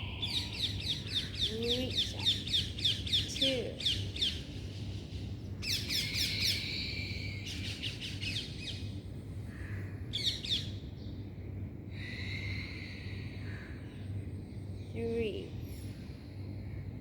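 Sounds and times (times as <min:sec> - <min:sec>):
birds chirping: 0:00.0 - 0:11.3.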